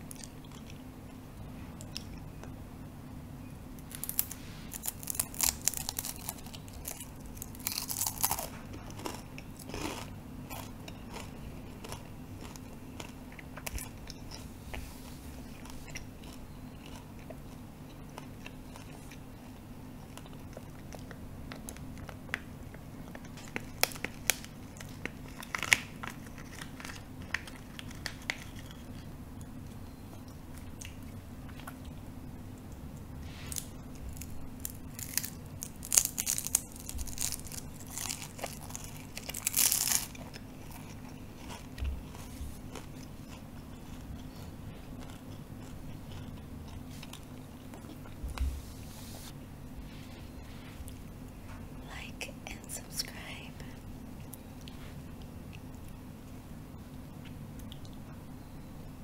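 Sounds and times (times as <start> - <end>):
mouth clicks and chewing: 0.0 - 1.2, 4.8 - 14.8, 15.5 - 33.1, 35.0 - 48.2, 57.2 - 58.2
crisp crunches of biting: 3.9 - 14.5, 33.5 - 48.2.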